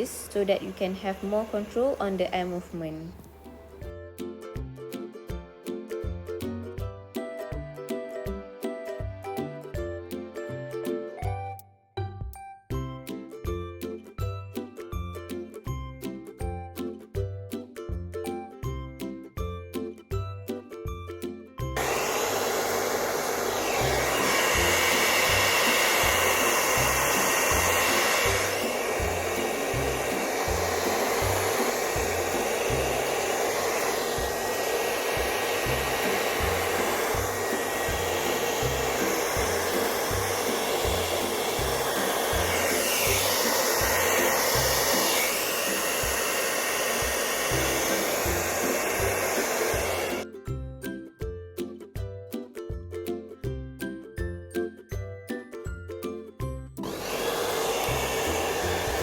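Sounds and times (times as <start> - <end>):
hair dryer blowing air: 0.0 - 3.8, 21.8 - 50.2, 56.8 - 59.0.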